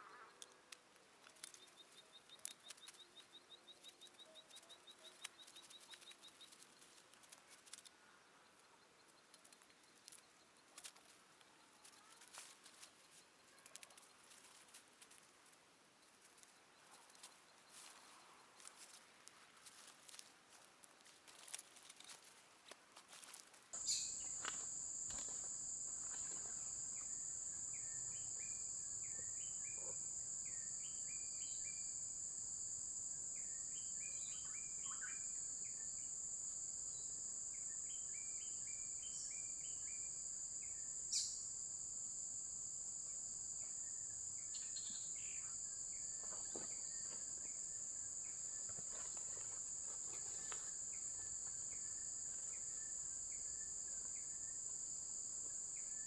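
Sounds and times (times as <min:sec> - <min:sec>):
insects droning: 0:23.8 - 0:56.0
short insect chirps: 0:23.8 - 0:56.0.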